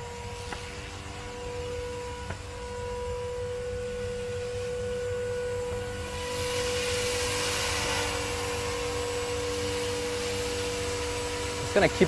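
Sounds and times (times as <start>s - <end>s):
rc helicopter motor whine: 0.0s - 12.0s
rushing hiss: 6.1s - 12.0s.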